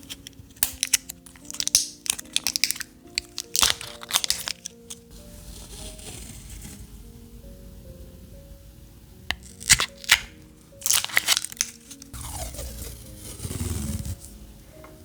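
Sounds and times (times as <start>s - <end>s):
paper rustling: 0.0s - 6.8s, 9.3s - 14.3s
paper tearing and crinkling: 0.0s - 6.8s, 9.3s - 14.3s
soft background music: 0.0s - 15.0s.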